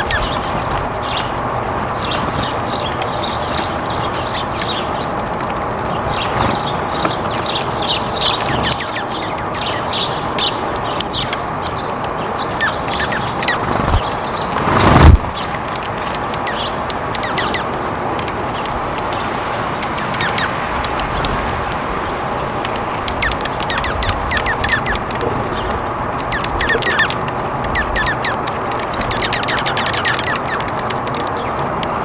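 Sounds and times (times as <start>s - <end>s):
small birds chirping: 0.0s - 32.0s
loud rushing noise: 13.6s - 15.4s.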